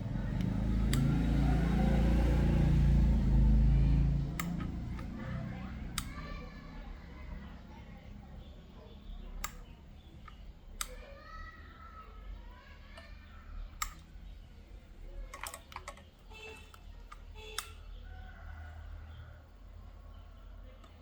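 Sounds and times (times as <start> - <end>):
small tools clicking and tapping: 15.3 - 17.7.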